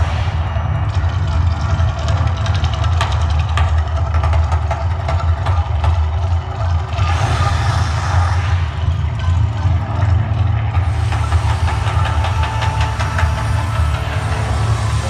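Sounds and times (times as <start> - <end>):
deep steady rumble: 0.0 - 15.0
soundtrack music over loudspeakers: 0.0 - 15.0.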